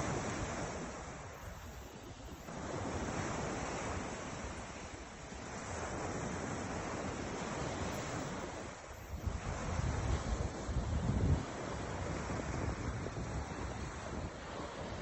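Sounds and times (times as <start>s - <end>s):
ocean surf washing on shore: 0.0s - 15.0s
wind buffeting microphone: 0.0s - 15.0s.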